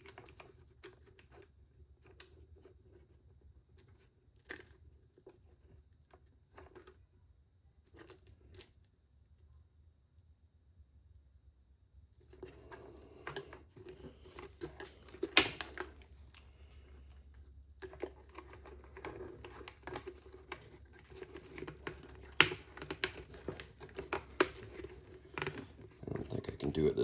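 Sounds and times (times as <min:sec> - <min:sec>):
plastic and metal parts clicking: 0:17.8 - 0:26.0.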